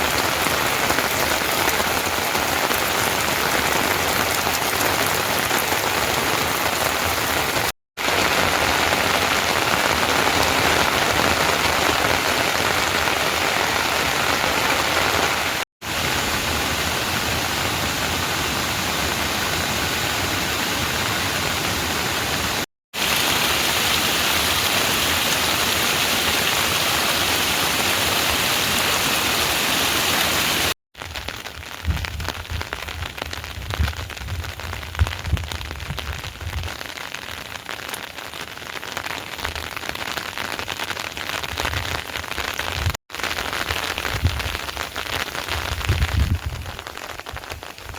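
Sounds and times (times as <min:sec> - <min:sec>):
heavy rain hiss: 0:00.0 - 0:30.8.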